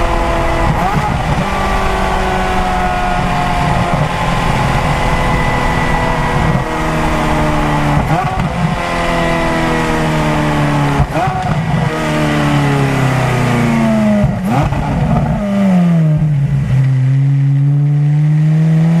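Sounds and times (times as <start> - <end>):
sports car engine driven hard: 0.0 - 19.0.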